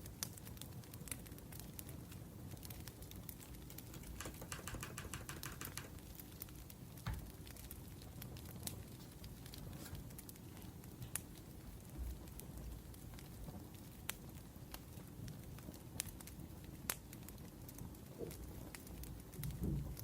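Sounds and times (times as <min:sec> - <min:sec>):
wood fire crackling and popping: 0:00.0 - 0:20.0
laptop keyboard typing: 0:04.0 - 0:06.0.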